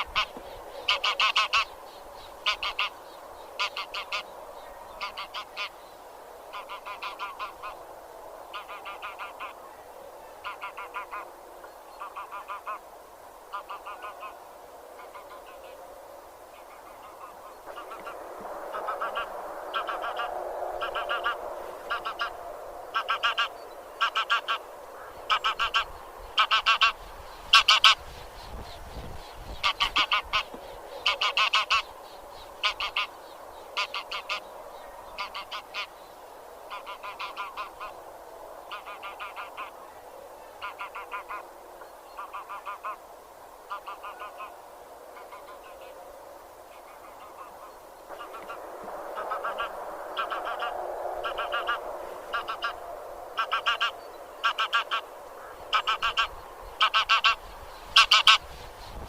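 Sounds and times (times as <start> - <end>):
geese honking: 0.0 - 1.7, 2.4 - 3.0, 3.6 - 4.3, 5.0 - 5.8, 6.5 - 7.8, 8.5 - 9.6, 10.4 - 11.3, 12.0 - 12.8, 13.5 - 14.4, 16.6 - 28.0, 29.6 - 31.9, 32.6 - 33.1, 33.8 - 34.5, 35.2 - 35.9, 36.7 - 38.0, 38.7 - 39.7, 40.6 - 41.4, 42.2 - 43.0, 43.7 - 44.5, 49.2 - 58.5
babble of goose calls: 0.0 - 1.8, 2.4 - 3.0, 3.6 - 4.3, 4.9 - 5.8, 6.5 - 7.8, 8.5 - 9.8, 10.4 - 11.3, 11.9 - 12.8, 13.5 - 14.4, 15.0 - 15.8, 16.5 - 28.0, 29.6 - 31.9, 32.6 - 33.2, 33.8 - 34.5, 35.2 - 35.9, 36.7 - 38.0, 38.7 - 41.5, 42.1 - 43.0, 43.7 - 44.6, 45.2 - 46.0, 46.7 - 48.6, 49.2 - 57.4, 58.0 - 58.5.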